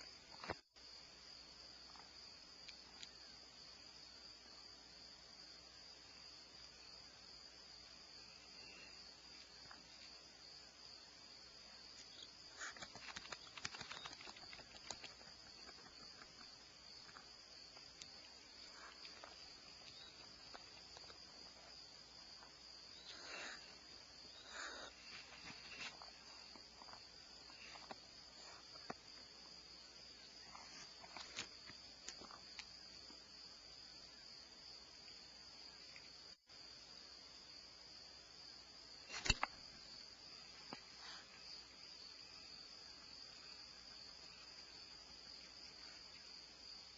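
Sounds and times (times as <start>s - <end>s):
crickets trilling: 0.0s - 46.9s
rustling bursts: 12.6s - 15.8s.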